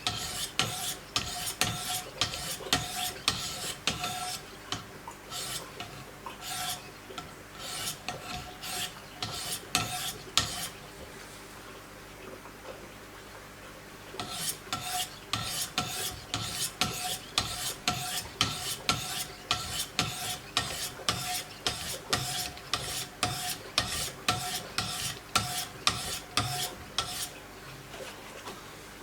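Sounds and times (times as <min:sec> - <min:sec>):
sharpening stones scraping knife blade: 0:05.3 - 0:05.7, 0:07.6 - 0:10.7.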